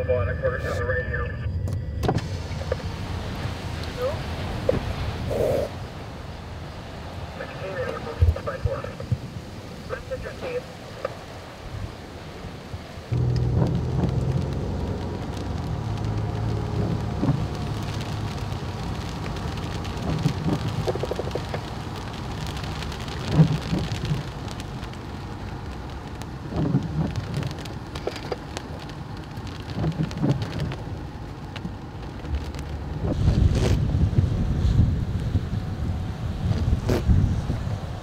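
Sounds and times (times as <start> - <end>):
rain pattering on car roof: 2.0 - 38.0
low hum: 13.1 - 17.8.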